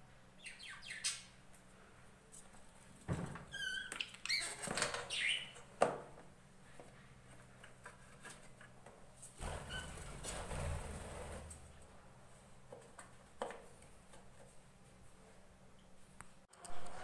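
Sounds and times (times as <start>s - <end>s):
wavering bird chirps: 0.4s - 1.4s.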